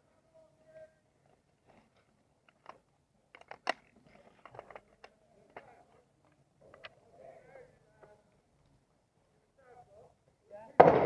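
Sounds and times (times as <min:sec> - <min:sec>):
airsoft gunshots: 0:10.8 - 0:11.0.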